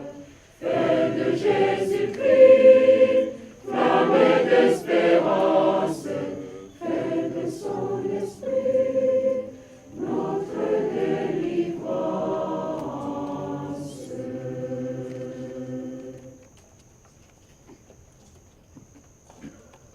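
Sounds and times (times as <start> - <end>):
choir singing a hymn: 0.0 - 16.5.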